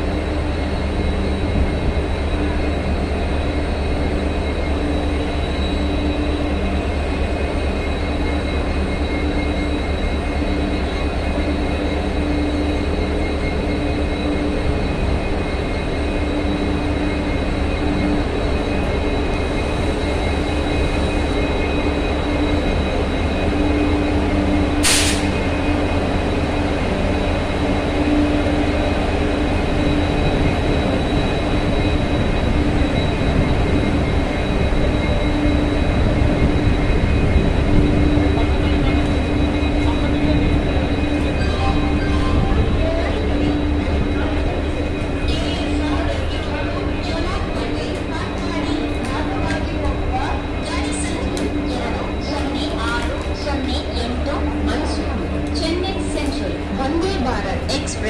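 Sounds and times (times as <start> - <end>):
train running rumble: 0.0 - 58.0.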